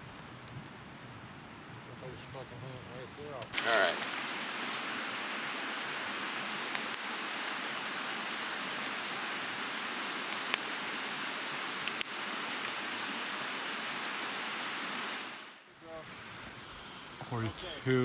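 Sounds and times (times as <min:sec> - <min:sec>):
river water rushing: 0:03.6 - 0:17.1.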